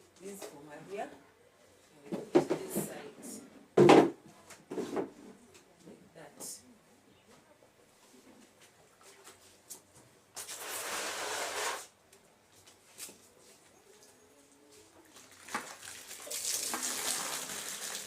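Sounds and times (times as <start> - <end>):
water splashing: 15.2 - 18.0.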